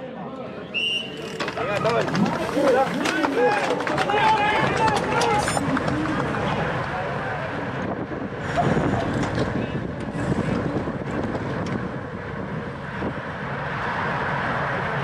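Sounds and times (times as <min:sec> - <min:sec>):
faint voices: 0:00.0 - 0:11.5
wind rushing over microphone: 0:01.6 - 0:15.0.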